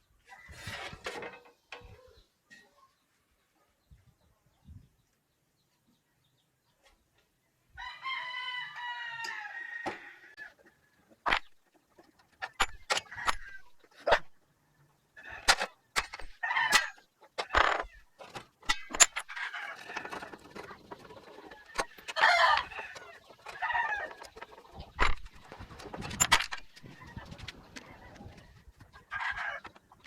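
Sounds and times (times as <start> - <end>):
rooster crowing: 7.8 - 10.4
chickens clucking: 9.2 - 30.0
sharp clicks or knocks: 11.3 - 11.6, 15.5 - 18.0, 18.6 - 19.4.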